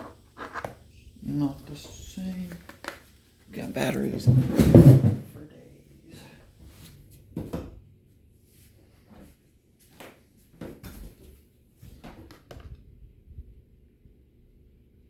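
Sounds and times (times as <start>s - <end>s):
hard plastic knocks and clatters: 4.2s - 5.3s.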